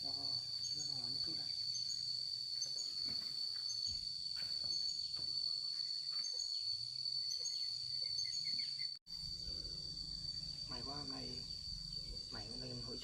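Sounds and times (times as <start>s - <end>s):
insects droning: 0.0s - 13.0s
low hum: 9.1s - 12.9s.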